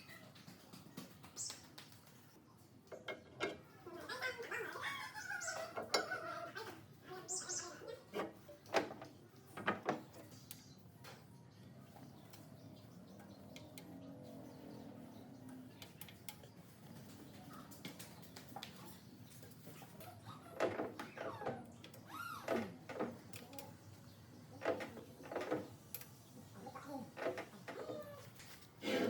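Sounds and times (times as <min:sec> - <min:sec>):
scraping and squeaking on metal: 0:19.6 - 0:23.7, 0:26.4 - 0:29.0.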